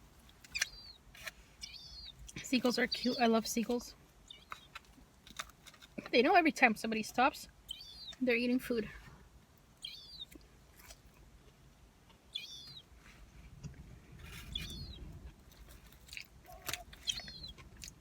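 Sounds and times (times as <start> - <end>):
bird giving high down-sweeping calls: 9.8 - 10.3, 12.4 - 12.8
faint chewing clicks: 13.6 - 18.0.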